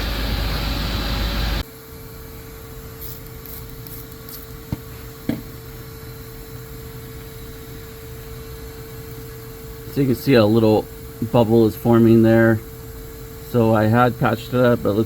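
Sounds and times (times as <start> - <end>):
faint steady hum: 0.0 - 15.0
shop vac blowing with whine: 0.0 - 15.0
spray bottle squirts: 3.0 - 4.8.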